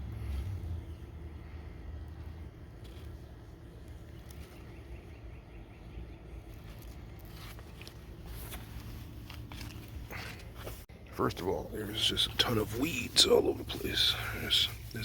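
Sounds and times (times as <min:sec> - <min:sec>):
low steady outdoor rumble: 0:00.0 - 0:15.0
leaves and stems rustling: 0:00.1 - 0:05.1, 0:06.4 - 0:10.9, 0:11.7 - 0:15.0
faint bird chirps: 0:04.0 - 0:07.0
footsteps: 0:06.5 - 0:13.8.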